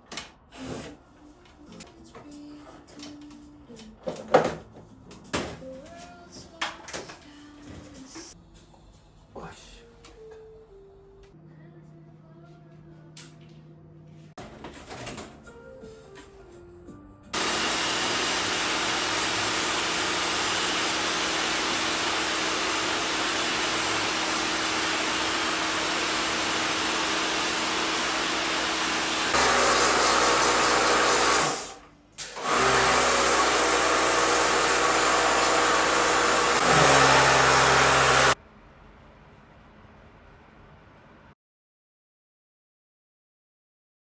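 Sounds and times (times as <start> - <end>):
appliance whirring loudly: 17.4 - 38.4.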